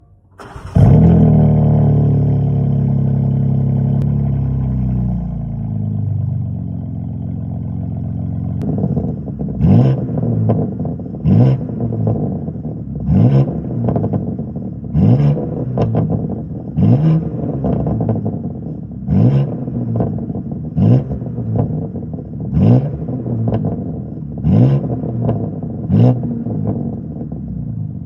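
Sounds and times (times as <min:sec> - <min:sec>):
car engine idling: 0:00.0 - 0:09.5
exhaust popping and crackling: 0:00.1 - 0:04.3
engine revving: 0:00.3 - 0:04.1, 0:13.1 - 0:14.2, 0:14.9 - 0:16.2, 0:16.8 - 0:18.3, 0:24.4 - 0:26.8.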